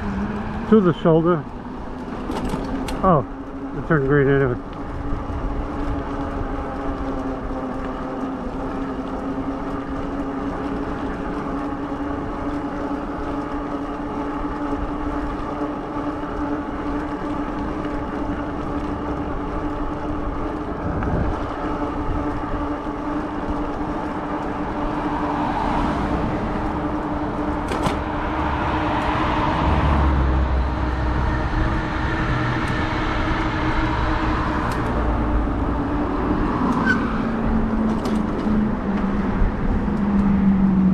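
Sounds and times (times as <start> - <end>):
road and wind noise: 0.0 - 40.9
loud rushing noise: 24.9 - 37.4.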